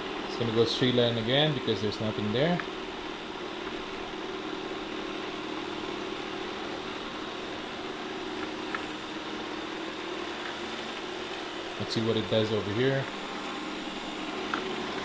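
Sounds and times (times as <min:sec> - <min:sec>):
robot vacuum motor and brushes humming: 0:00.0 - 0:15.0.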